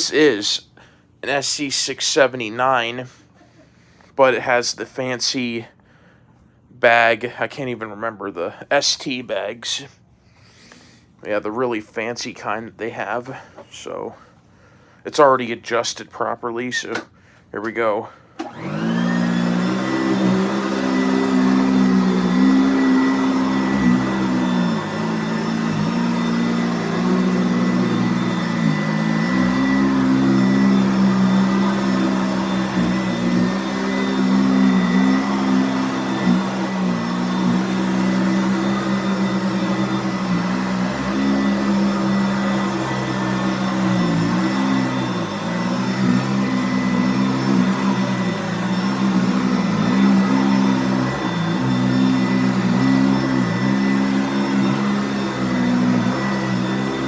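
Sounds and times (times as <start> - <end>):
upright vacuum cleaner running: 18.4 - 57.0.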